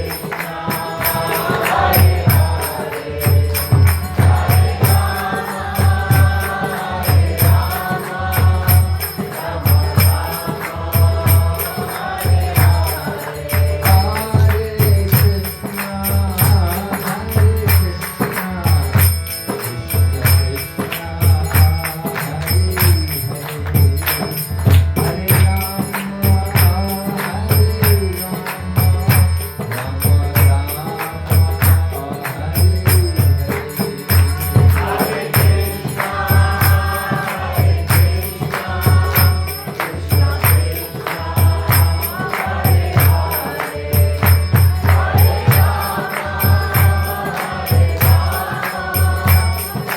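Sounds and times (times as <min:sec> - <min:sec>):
voices chanting: 0:00.0 - 0:14.7, 0:33.5 - 0:49.9
drum beating steady pulse: 0:00.0 - 0:18.0, 0:32.6 - 0:49.9
hand cymbals ringing: 0:25.4 - 0:49.9.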